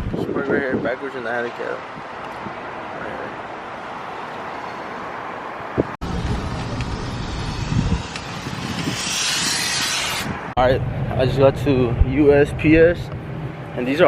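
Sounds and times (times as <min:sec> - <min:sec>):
wind on microphone: 0:00.0 - 0:01.0, 0:05.7 - 0:13.6
street noise: 0:00.0 - 0:14.0
car engine and road rumble: 0:01.6 - 0:14.0
hiss: 0:06.6 - 0:10.5.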